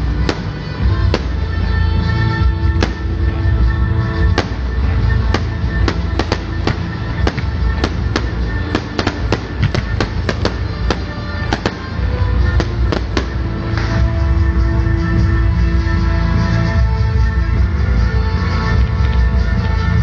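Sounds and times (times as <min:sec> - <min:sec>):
fireworks bangs: 0:00.0 - 0:01.6, 0:02.7 - 0:03.5, 0:04.2 - 0:14.4.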